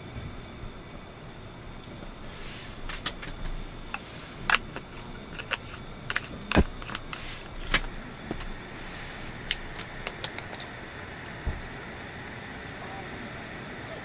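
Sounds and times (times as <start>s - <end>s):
background hiss: 0.0s - 14.0s
sharp clicks and knocks: 2.8s - 10.7s.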